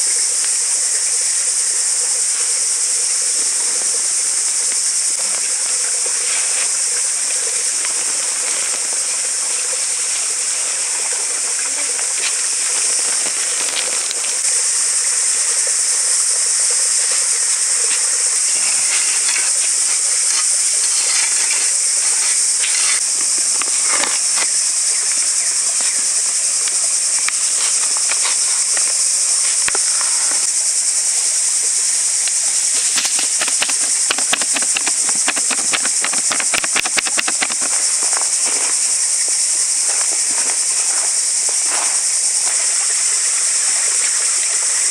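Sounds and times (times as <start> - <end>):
insect chorus drone: 0.0 - 44.9
quick ticks: 32.3 - 37.9.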